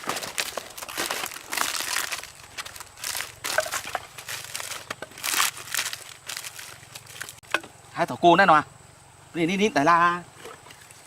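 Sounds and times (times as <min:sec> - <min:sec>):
rustling and crinkling: 0:00.0 - 0:07.6.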